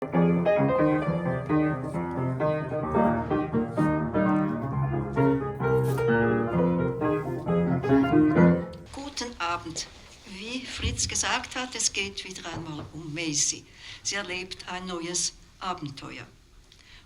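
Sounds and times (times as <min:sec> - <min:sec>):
solo piano playing: 0:00.0 - 0:08.9.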